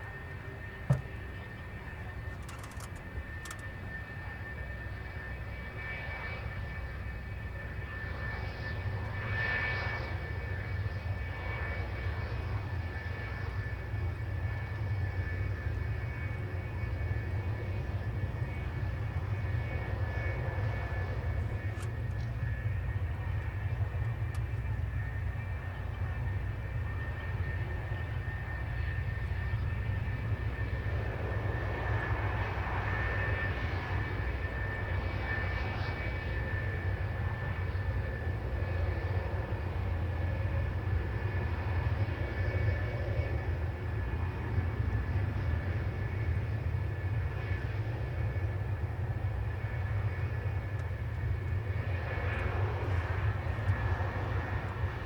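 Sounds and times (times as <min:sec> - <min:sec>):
jet engine rumble and whine: 0:00.0 - 0:55.0.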